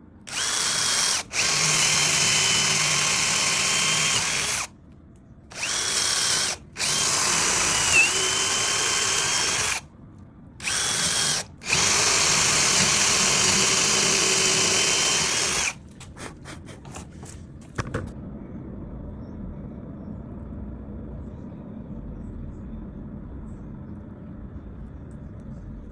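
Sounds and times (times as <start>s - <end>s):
power tool whining on wood: 0.3s - 4.7s, 5.5s - 9.8s, 10.6s - 15.8s.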